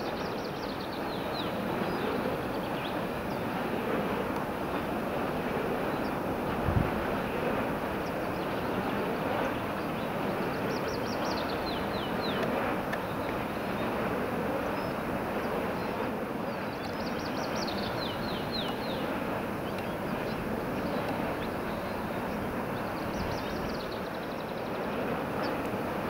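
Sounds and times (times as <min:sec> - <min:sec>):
songbird singing: 0:10.0 - 0:13.9, 0:16.5 - 0:24.8.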